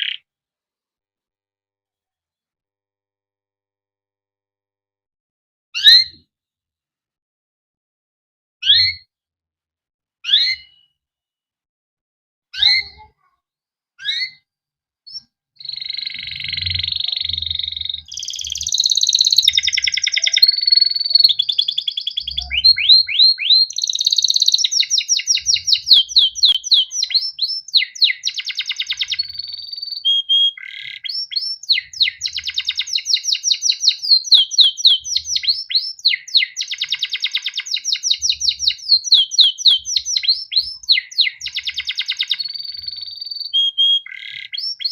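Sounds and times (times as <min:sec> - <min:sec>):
canary singing trills: 0:00.0 - 0:00.2, 0:14.0 - 0:14.4, 0:15.1 - 0:44.9.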